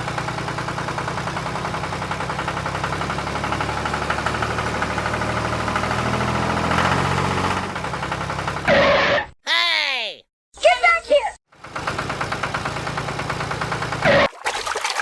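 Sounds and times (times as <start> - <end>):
small tractor engine chugging: 0.0 - 5.3, 11.5 - 14.3.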